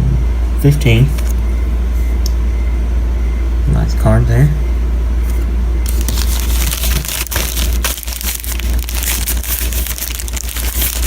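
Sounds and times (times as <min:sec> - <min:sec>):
steady low hum: 0:00.0 - 0:11.0
packaging crinkling: 0:05.8 - 0:11.0.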